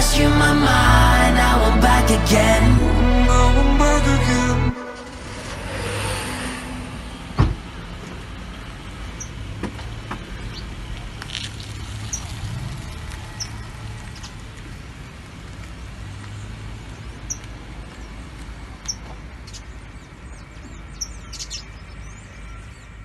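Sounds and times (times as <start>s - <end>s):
steady low rumble: 0.0s - 9.1s
birds chirping: 9.0s - 9.5s, 13.3s - 14.5s, 16.3s - 23.0s.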